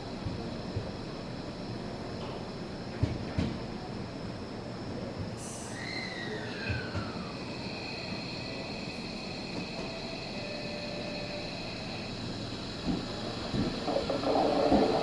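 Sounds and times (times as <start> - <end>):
train running noise: 0.0 - 15.0
train motor whine: 6.2 - 15.0.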